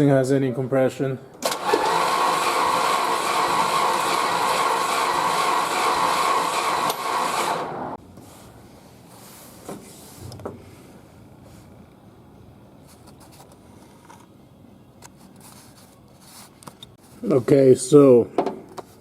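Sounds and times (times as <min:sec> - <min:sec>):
starter motor cranking engine: 0:01.4 - 0:08.0.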